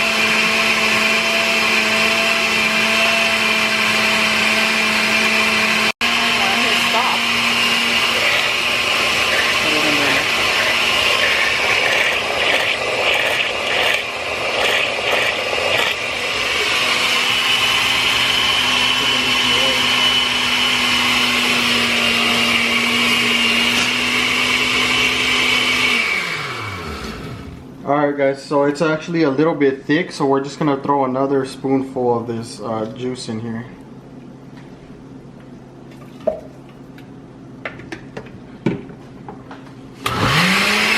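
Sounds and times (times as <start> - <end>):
blender running: 0.0 - 27.7, 40.0 - 40.9.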